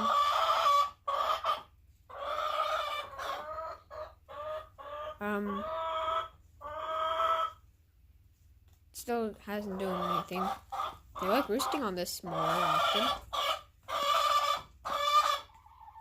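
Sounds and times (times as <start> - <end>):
chickens clucking: 0.0 - 7.9, 9.4 - 16.0.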